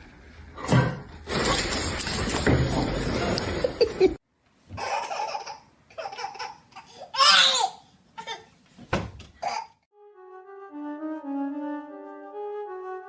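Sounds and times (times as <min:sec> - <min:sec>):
laughter: 0:03.5 - 0:04.2.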